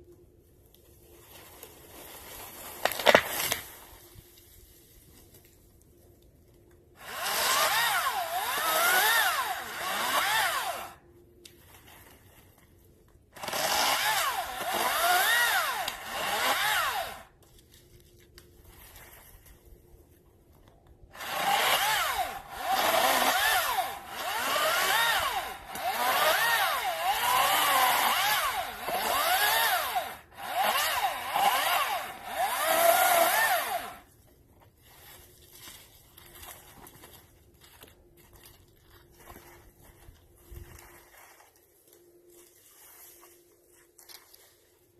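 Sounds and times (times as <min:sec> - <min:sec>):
electric chainsaw cutting wood: 0:02.8 - 0:03.6, 0:07.0 - 0:11.0, 0:13.4 - 0:17.3, 0:21.1 - 0:34.1.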